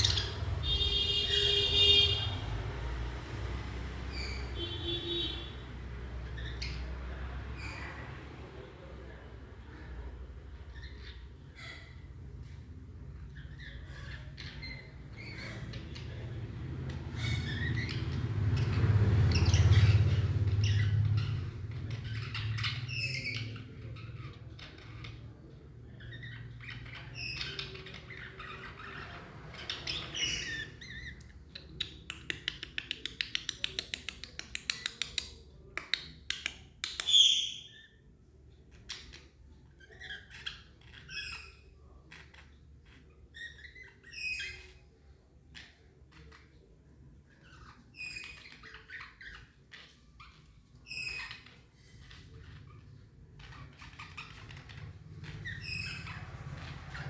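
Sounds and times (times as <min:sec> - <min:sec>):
budgerigars chirping and squawking: 0:00.0 - 0:02.8, 0:04.0 - 0:08.4, 0:09.1 - 0:35.4, 0:36.0 - 0:57.0.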